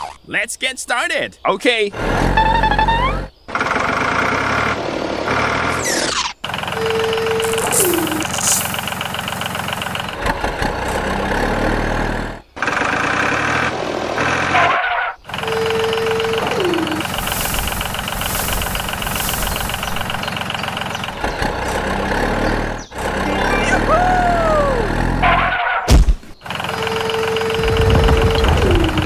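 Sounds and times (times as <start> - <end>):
tractor engine running: 2.0 - 29.0
short tone sliding down: 26.8 - 29.0.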